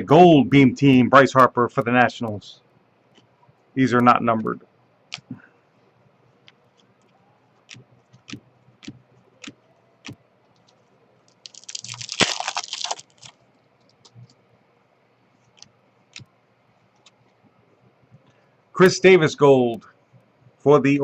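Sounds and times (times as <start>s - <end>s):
trading cards clicking and tapping: 0.5s - 2.4s, 3.9s - 5.3s, 6.5s - 10.8s
card pack wrapper crinkling: 11.3s - 13.4s.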